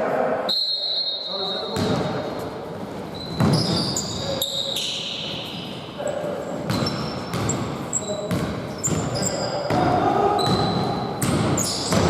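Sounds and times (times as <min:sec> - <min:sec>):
sneakers squeaking on court: 0:01.4 - 0:12.0
basketball bouncing: 0:03.3 - 0:03.8, 0:06.7 - 0:12.0.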